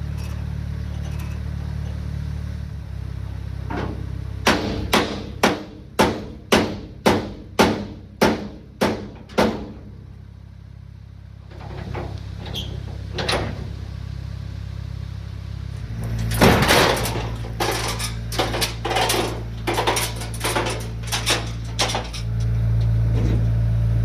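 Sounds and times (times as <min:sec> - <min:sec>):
truck engine idling: 0:00.0 - 0:24.0
loud clatter: 0:16.1 - 0:22.5.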